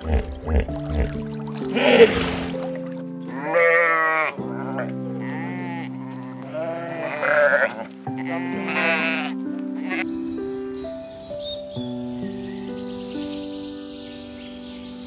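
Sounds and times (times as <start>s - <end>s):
background music with sustained notes: 0.0s - 15.0s
sheep bleating: 3.3s - 10.1s.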